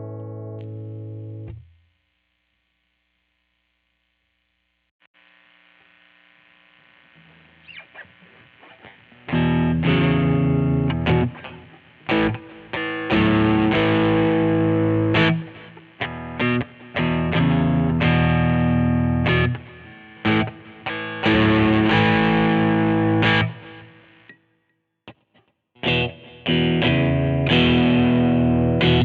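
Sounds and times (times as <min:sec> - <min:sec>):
distorted electric guitar chords: 0:00.0 - 0:01.8, 0:07.0 - 0:24.4, 0:25.8 - 0:29.0.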